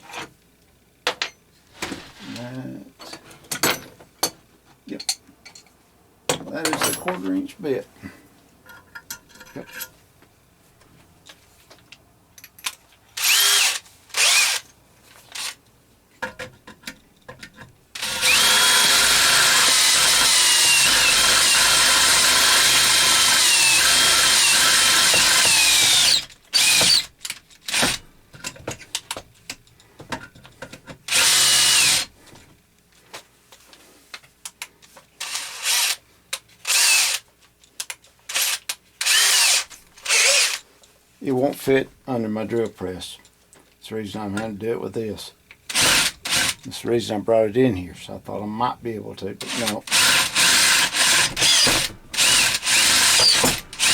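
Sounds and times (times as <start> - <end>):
electric drill boring metal: 13.2 - 14.6, 18.0 - 27.1, 31.1 - 32.1, 36.7 - 37.2, 38.4 - 40.6, 45.7 - 46.6, 49.5 - 53.9.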